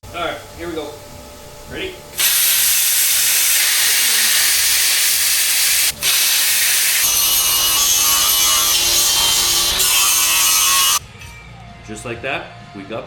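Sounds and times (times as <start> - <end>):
power tool cutting steel: 2.2 - 11.0.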